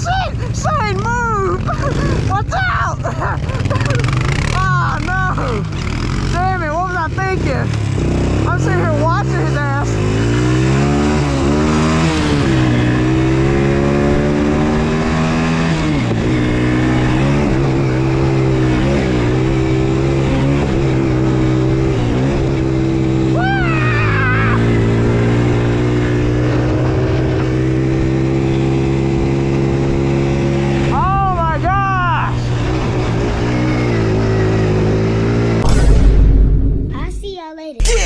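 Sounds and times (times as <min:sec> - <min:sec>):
off-road engine running: 0:00.0 - 0:35.6
high-pitched yell: 0:37.8 - 0:38.0.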